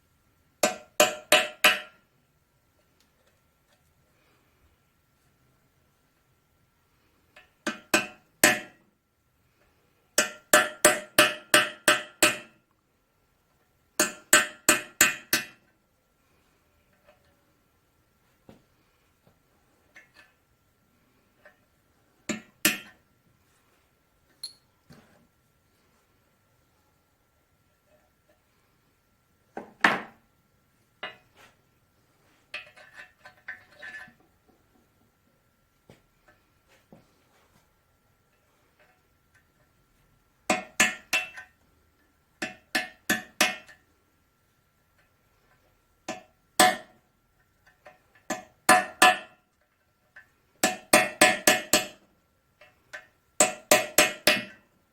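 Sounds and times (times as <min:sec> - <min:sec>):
hammer striking metal chisel: 0:00.6 - 0:02.0, 0:07.4 - 0:08.8, 0:10.2 - 0:12.6, 0:14.0 - 0:15.6, 0:22.3 - 0:23.0, 0:40.5 - 0:41.4, 0:42.4 - 0:43.8, 0:46.1 - 0:47.0, 0:48.3 - 0:49.4, 0:50.6 - 0:52.0, 0:52.9 - 0:54.6.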